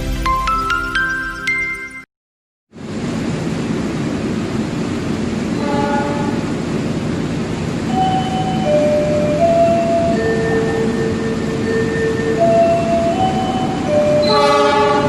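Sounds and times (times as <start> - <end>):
rain: 2.8 - 8.0
train rumble and hiss: 2.8 - 15.0.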